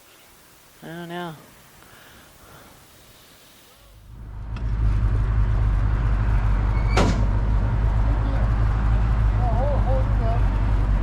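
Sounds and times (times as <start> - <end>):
vehicle engine rumbling: 4.0 - 11.0.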